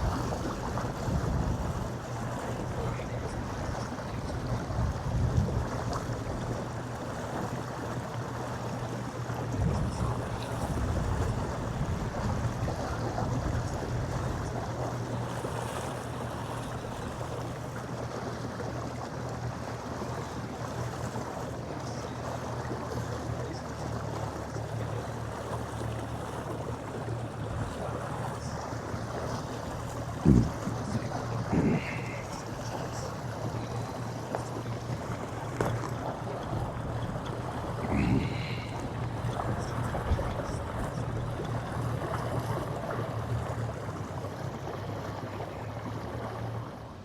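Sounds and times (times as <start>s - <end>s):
wind buffeting microphone: 0.0s - 6.6s, 9.4s - 14.8s
steady low hum: 0.0s - 17.6s, 20.4s - 44.2s
water slapping boat hull: 0.0s - 47.0s.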